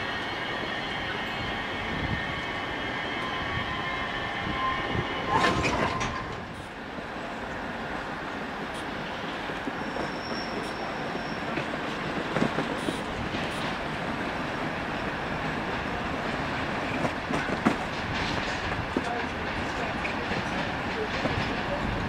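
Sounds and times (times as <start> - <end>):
train rolling rumble: 0.0 - 22.0
train wheels squealing: 0.1 - 6.7, 8.8 - 11.7
wheels clattering over rail joints: 5.3 - 6.6, 16.3 - 22.0.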